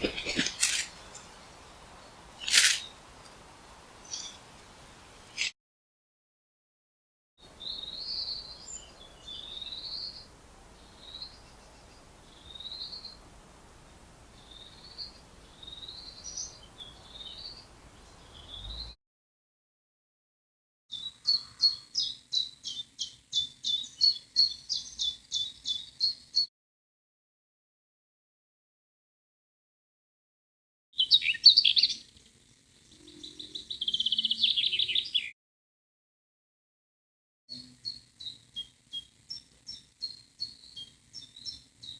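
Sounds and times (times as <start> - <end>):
bird chirping: 0.0 - 5.5, 7.5 - 19.0, 20.9 - 26.4, 31.0 - 32.2, 32.9 - 35.3, 37.6 - 41.9
faint steady hiss: 0.0 - 5.5, 7.4 - 18.9
songbird singing: 0.0 - 5.5, 7.4 - 19.0, 20.9 - 26.4, 31.0 - 35.3, 37.5 - 41.9.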